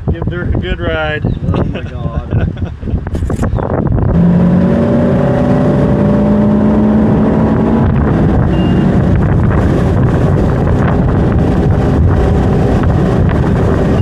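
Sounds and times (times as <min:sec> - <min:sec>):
wind buffeting microphone: 0:00.0 - 0:14.0
boat engine running: 0:04.0 - 0:14.0.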